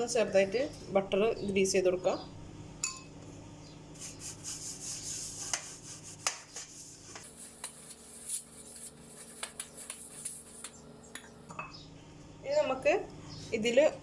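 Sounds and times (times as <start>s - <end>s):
butter rubbed over a pan: 4.0s - 10.7s.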